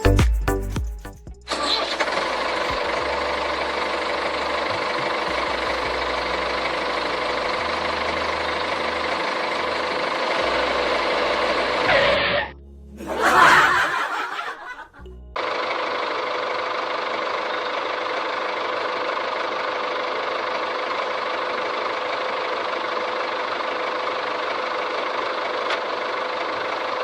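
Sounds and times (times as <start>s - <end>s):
motor humming: 1.4s - 12.5s.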